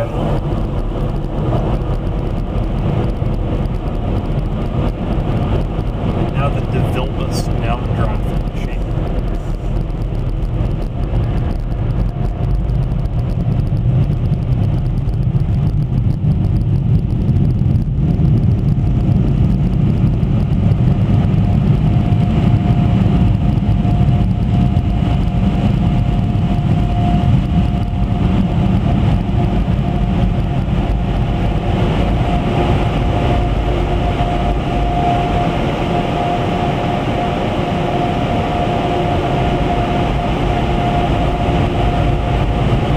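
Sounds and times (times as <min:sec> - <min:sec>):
car wash machine rushing: 0:00.0 - 0:12.0, 0:26.4 - 0:42.9
thin whine: 0:00.0 - 0:42.9.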